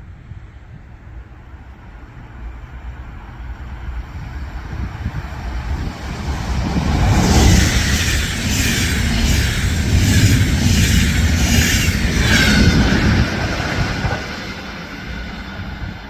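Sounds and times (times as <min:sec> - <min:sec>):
train rumble: 0:00.0 - 0:16.0
wind buffeting microphone: 0:03.5 - 0:16.0.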